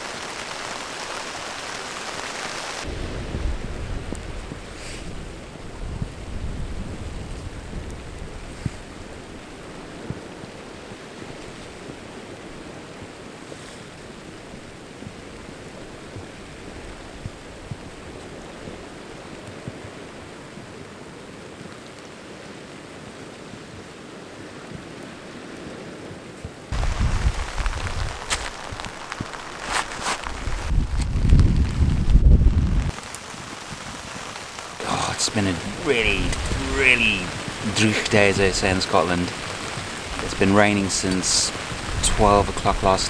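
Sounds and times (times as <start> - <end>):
rain: 0.0 - 43.0
wind: 0.0 - 43.0
loud rustle: 26.8 - 38.2
sea surf: 32.8 - 43.0.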